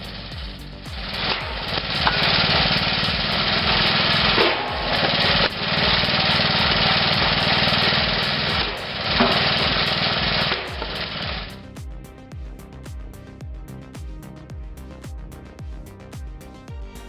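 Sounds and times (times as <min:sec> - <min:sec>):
small petrol engine running: 0:01.0 - 0:11.5.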